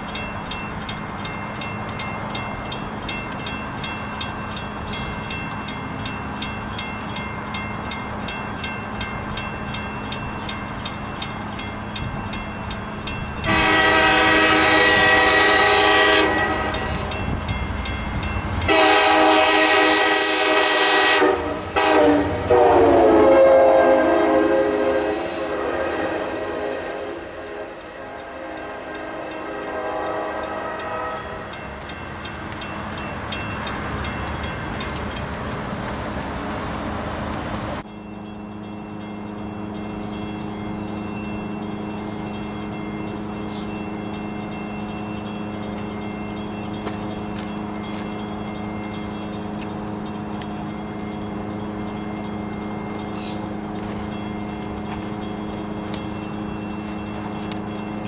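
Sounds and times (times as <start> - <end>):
train passing by: 0.0 - 58.0.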